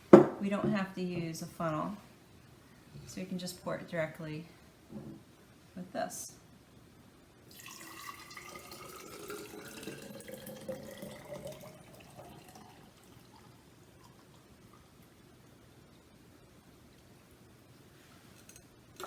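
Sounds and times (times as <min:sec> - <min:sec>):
liquid pouring into feeder: 0:07.5 - 0:15.1.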